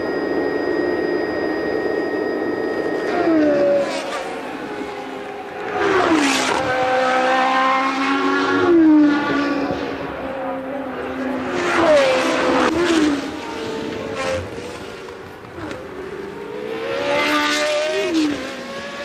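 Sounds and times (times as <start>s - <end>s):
race car engines passing: 2.8s - 19.0s.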